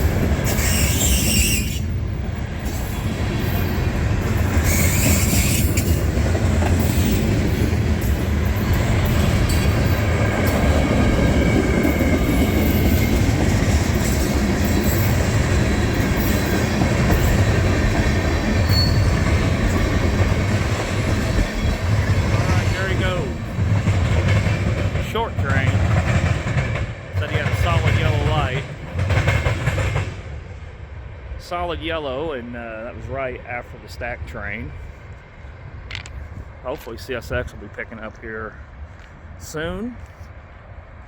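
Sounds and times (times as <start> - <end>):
train wheels squealing: 0.0 - 6.1, 6.7 - 10.7, 11.8 - 20.0
freight train wheels rumbling: 0.0 - 41.0.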